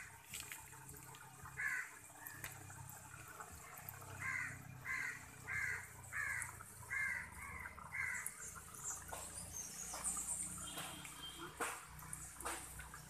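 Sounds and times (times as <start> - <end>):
bird calls: 4.2 - 13.0.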